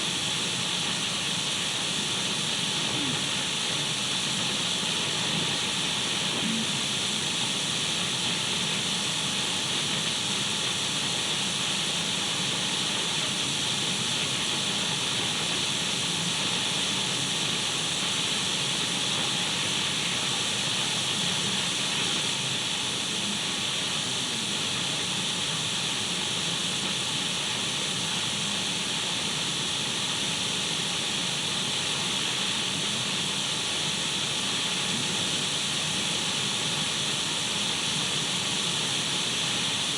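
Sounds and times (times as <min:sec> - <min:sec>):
radio static hiss: 0:02.5 - 0:07.8, 0:19.2 - 0:25.9, 0:34.6 - 0:35.8.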